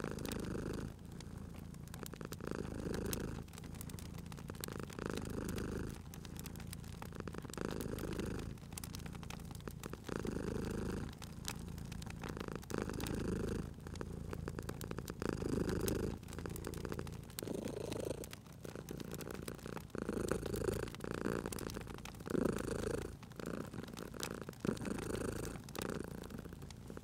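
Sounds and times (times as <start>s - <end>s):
cat purring: 0.0s - 27.0s
crackling wood fire: 0.0s - 27.0s.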